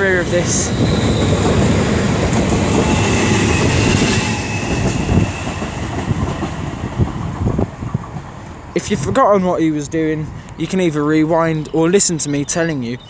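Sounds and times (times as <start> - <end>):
train wheels rumbling and clattering: 0.0 - 10.4.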